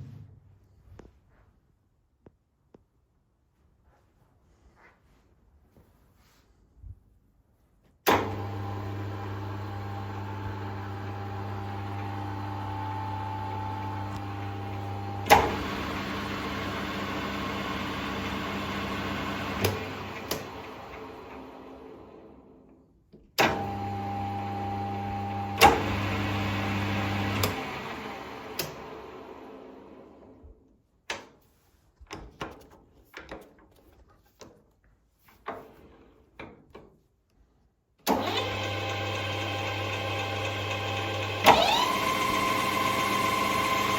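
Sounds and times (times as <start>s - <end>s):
lathe spinning down: 38.1s - 43.9s
metal lathe humming: 38.3s - 43.9s.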